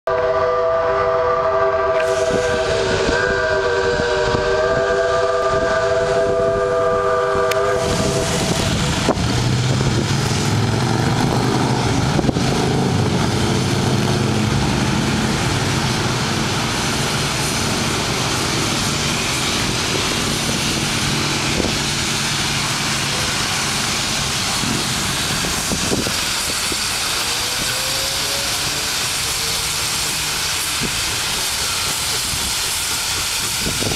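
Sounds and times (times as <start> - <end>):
steam locomotive whistle: 0.1 - 9.2, 17.0 - 33.9
low rumble of train: 0.1 - 33.9
steam hiss: 1.6 - 33.9.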